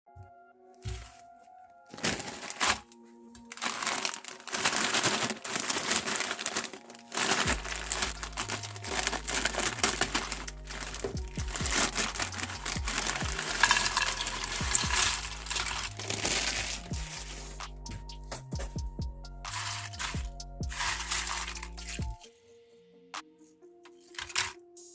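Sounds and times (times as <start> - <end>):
chips crunching in grinder: 3.5 - 17.2, 19.5 - 22.0
background music with bass: 6.4 - 22.3.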